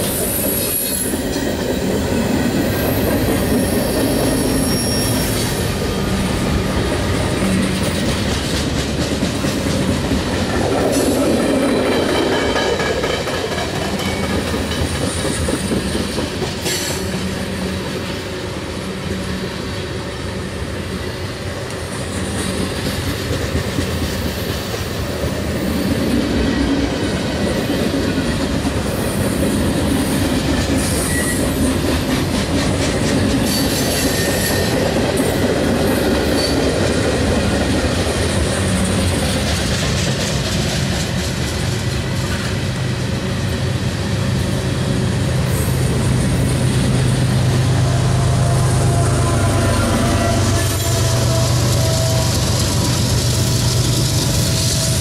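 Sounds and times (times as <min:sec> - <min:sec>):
train wheels clattering over rails: 0:00.0 - 0:18.4, 0:21.8 - 0:44.7, 0:49.8 - 0:55.0
high wheel squeal: 0:02.6 - 0:06.3, 0:30.8 - 0:31.8, 0:33.5 - 0:34.8, 0:48.0 - 0:55.0.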